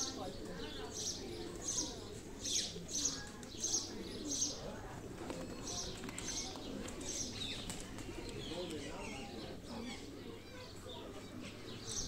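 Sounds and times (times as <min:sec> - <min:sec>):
birds chirping: 0:05.5 - 0:12.0.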